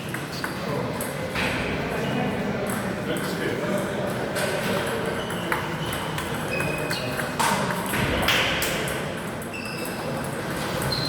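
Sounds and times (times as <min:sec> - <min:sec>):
murmur of hall background: 0:00.0 - 0:11.0
table tennis balls clicking: 0:04.7 - 0:08.0.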